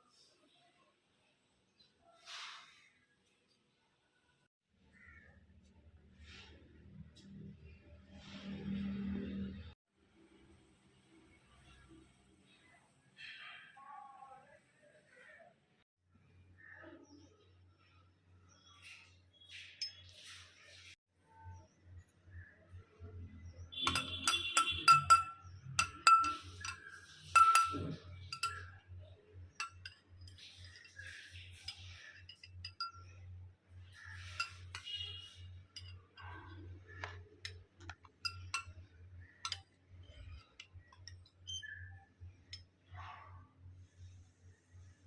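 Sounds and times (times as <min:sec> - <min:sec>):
glass or dishes clinking: 0:23.8 - 0:28.8, 0:29.5 - 0:33.2, 0:34.2 - 0:41.2.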